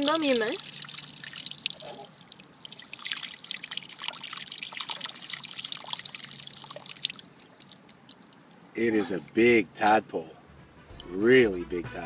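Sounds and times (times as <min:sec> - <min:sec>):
water sloshing and splashing: 0:00.0 - 0:08.7.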